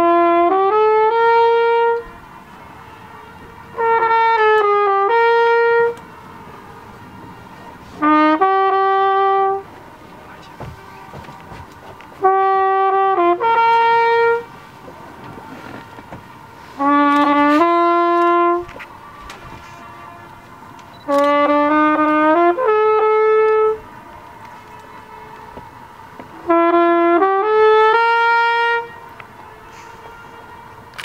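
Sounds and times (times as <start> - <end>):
horn echo off rock walls: 0.0 - 6.4, 8.0 - 31.0
brass horn playing: 0.0 - 31.0.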